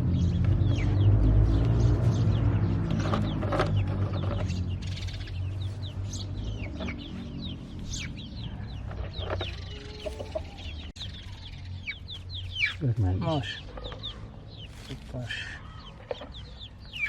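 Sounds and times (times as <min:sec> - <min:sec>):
chicks peeping: 0:00.0 - 0:17.0
hen clucking: 0:06.6 - 0:10.9.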